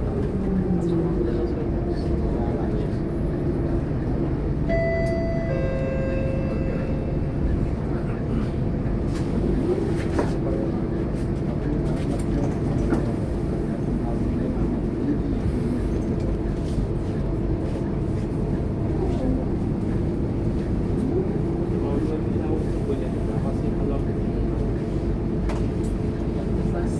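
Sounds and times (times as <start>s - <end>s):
bus diesel engine drone: 0.0s - 26.9s
two-note electronic chime: 4.7s - 7.6s.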